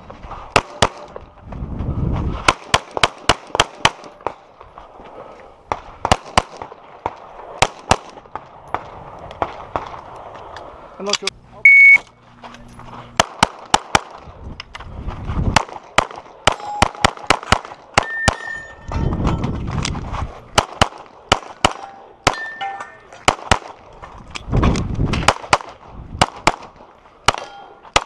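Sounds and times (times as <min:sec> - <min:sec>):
pistol shots: 0:13.2 - 0:14.2, 0:15.6 - 0:18.6, 0:20.6 - 0:22.6, 0:23.2 - 0:23.8, 0:25.1 - 0:28.0
steel targets ringing: 0:16.5 - 0:17.3, 0:18.0 - 0:19.6, 0:21.8 - 0:23.1, 0:27.4 - 0:27.9.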